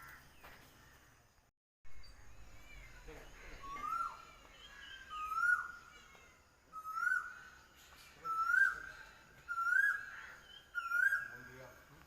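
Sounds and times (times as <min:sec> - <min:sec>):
bird whistled call: 0:03.5 - 0:05.8, 0:09.5 - 0:11.4.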